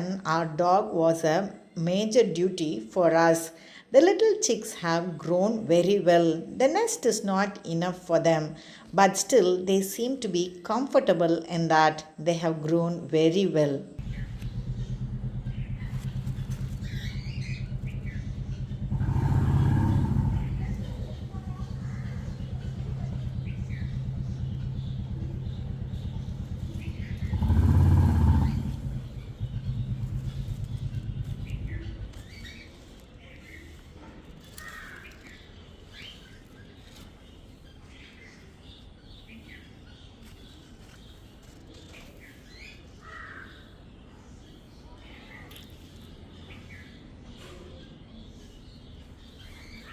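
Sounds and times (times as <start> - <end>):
low background rumble: 14.0 - 33.8
vehicle engine humming: 14.0 - 34.9
faint bird chirps: 14.0 - 49.9.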